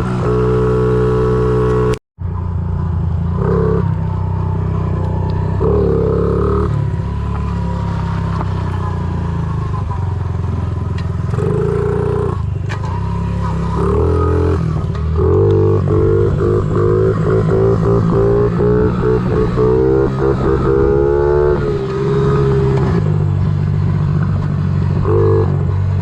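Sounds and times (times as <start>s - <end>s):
small motorbike engine revving: 11.2s - 26.0s.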